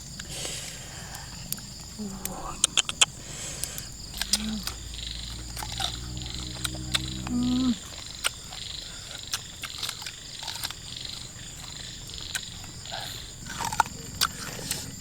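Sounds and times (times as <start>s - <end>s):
frogs calling: 0.0s - 15.0s
sharp clicks: 1.1s - 15.0s
low hum: 1.2s - 9.0s.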